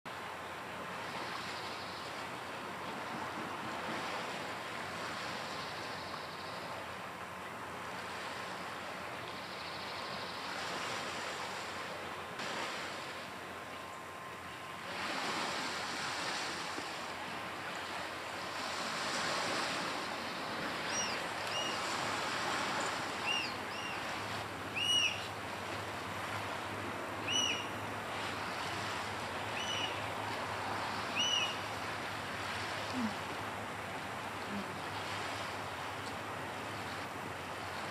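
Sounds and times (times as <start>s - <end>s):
surf washing on rocky shore: 0.1s - 6.0s, 10.1s - 37.9s
oystercatcher whistled calls: 23.2s - 24.0s, 24.8s - 25.2s, 27.3s - 27.7s, 29.6s - 30.0s, 31.2s - 31.6s.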